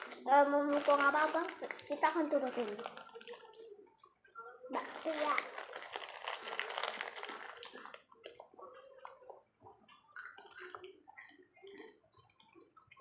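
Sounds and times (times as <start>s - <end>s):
wet chewing and mouth smacks: 7.5s - 13.0s.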